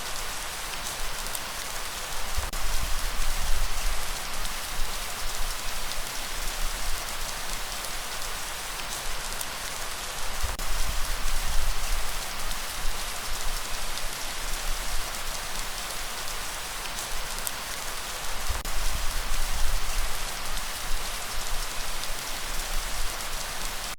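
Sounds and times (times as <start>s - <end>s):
light rain: 0.0s - 23.9s.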